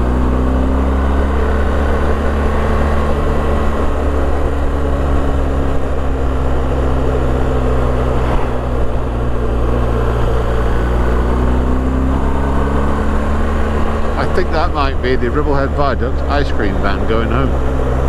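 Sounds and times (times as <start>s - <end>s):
motorcycle engine cruising: 0.0s - 18.0s
steady rushing noise: 2.0s - 11.4s.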